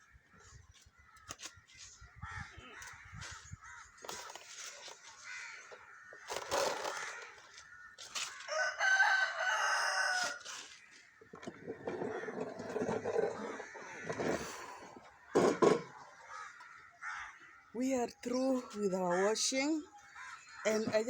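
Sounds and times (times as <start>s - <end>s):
rooster crowing: 8.4s - 10.6s.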